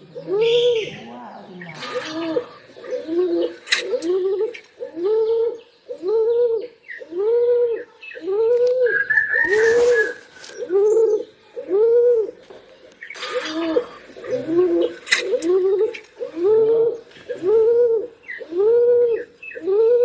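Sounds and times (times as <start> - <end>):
pigeons cooing: 0.0 - 20.0
brief rustle: 9.4 - 10.7, 14.9 - 16.2.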